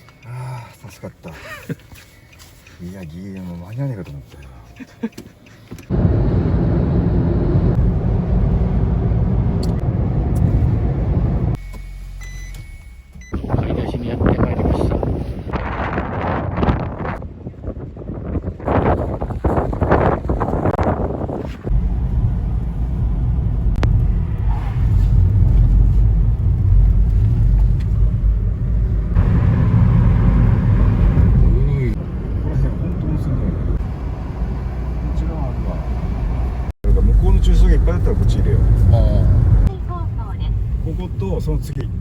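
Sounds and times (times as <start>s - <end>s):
road noise: 0.0s - 12.5s, 18.6s - 42.0s
car engine rumble: 0.0s - 15.6s, 16.2s - 42.0s.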